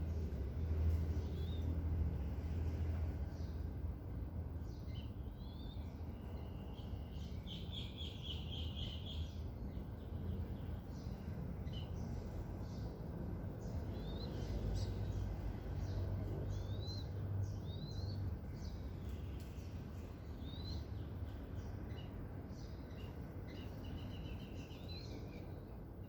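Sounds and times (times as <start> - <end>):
low outdoor rumble: 0.0 - 8.0
wild birds chirping: 0.0 - 26.0.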